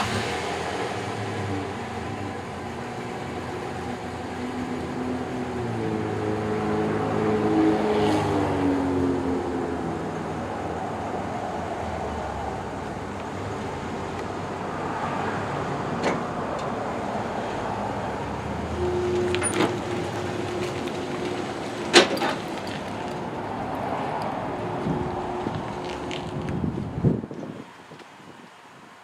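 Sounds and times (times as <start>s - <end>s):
truck engine and road noise: 0.0s - 29.0s.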